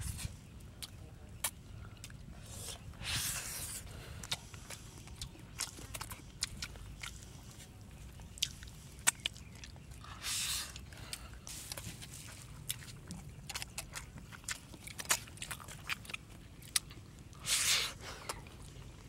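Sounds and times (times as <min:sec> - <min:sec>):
wet chewing: 0:00.0 - 0:19.0
lip-smacking clicks: 0:08.4 - 0:09.4.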